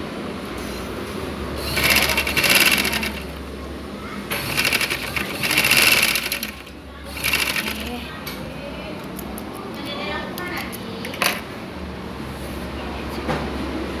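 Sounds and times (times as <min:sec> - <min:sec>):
overlock machine running: 0:01.6 - 0:08.0.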